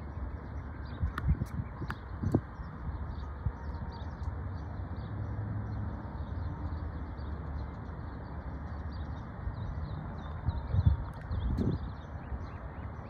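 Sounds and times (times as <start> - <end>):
small birds chirping: 0.0 - 13.0
steady low rumble: 0.0 - 13.0.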